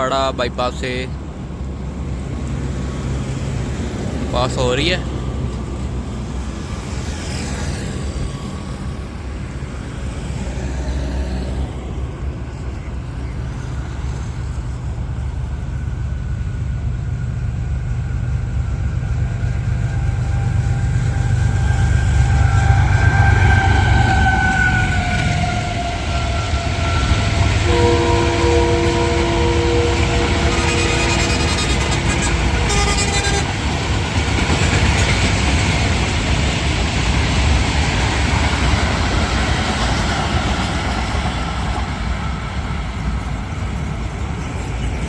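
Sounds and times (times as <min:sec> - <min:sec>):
train passing at speed: 0:00.0 - 0:45.0
two-tone train horn: 0:20.2 - 0:34.2.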